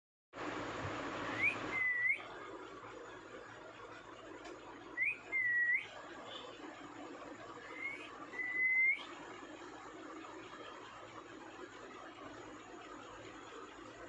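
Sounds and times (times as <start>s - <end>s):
parakeet whistling: 1.2s - 2.3s, 5.0s - 5.9s, 7.7s - 9.1s.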